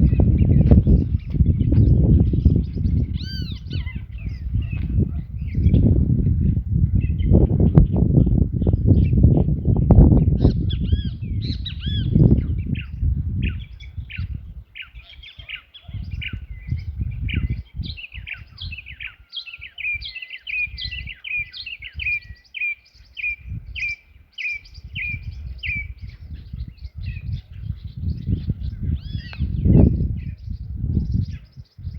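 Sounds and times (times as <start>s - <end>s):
wild birds calling and chirping: 0.0s - 31.9s.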